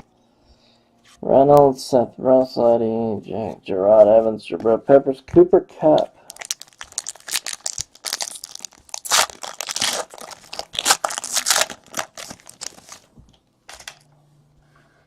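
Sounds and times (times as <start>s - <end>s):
card pack wrappers crinkling: 6.2s - 13.1s.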